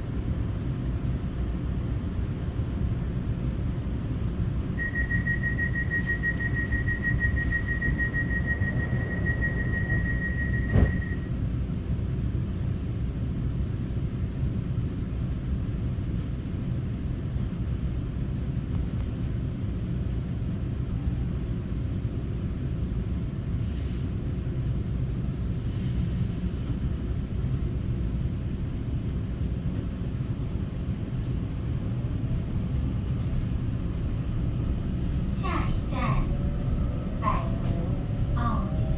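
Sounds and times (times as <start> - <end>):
train rumbling on track: 0.0 - 38.9
steady high tone: 4.8 - 11.3, 35.3 - 38.9.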